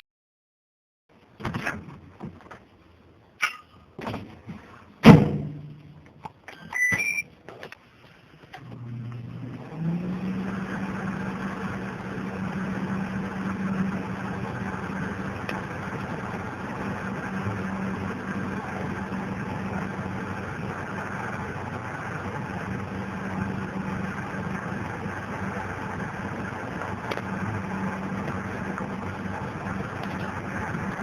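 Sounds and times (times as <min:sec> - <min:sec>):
microwave oven running: 0:08.5 - 0:31.0.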